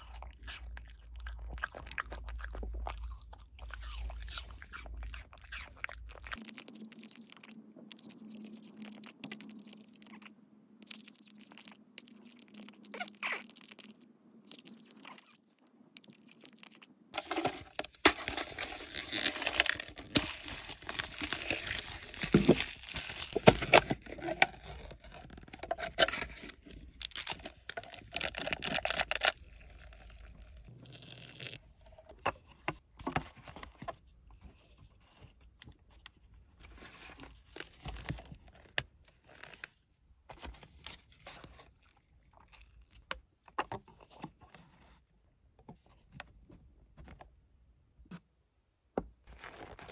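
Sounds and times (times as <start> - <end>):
packaging crinkling and tearing: 17.2 - 31.6, 49.3 - 49.9.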